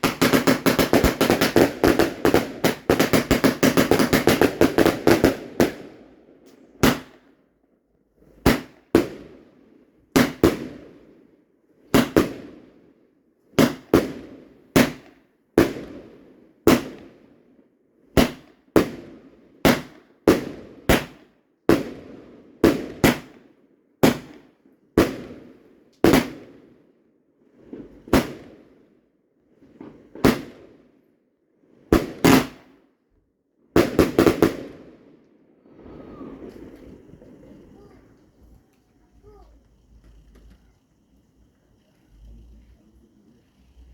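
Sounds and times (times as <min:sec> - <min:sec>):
fireworks bangs with echo: 0:00.0 - 0:07.4, 0:08.3 - 0:11.2, 0:11.9 - 0:12.9, 0:13.6 - 0:17.3, 0:18.1 - 0:26.8, 0:27.6 - 0:28.9, 0:29.7 - 0:30.8, 0:31.9 - 0:32.8, 0:33.7 - 0:35.0, 0:35.6 - 0:38.6.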